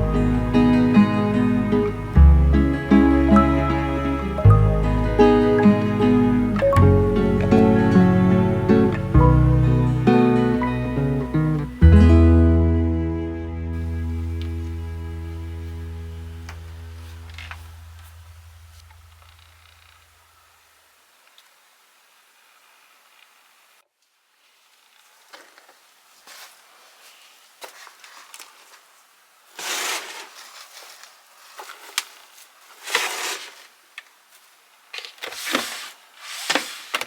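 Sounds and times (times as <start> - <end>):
low note of background music: 0.0 - 19.1
rubbing or rustling noises: 25.0 - 37.0.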